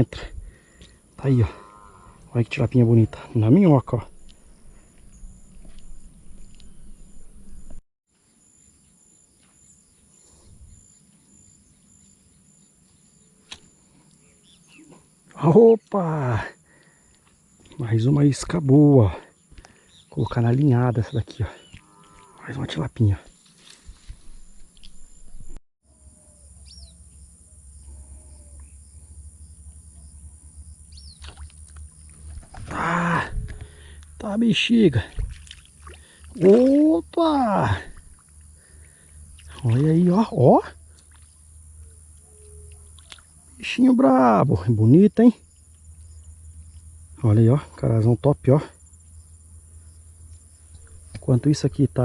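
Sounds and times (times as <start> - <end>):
low outdoor hum: 0.0 - 7.8, 23.2 - 52.0
insect chirping: 0.0 - 52.0
low rumble: 4.1 - 7.8
high bird chirps: 26.4 - 27.2, 30.9 - 31.4.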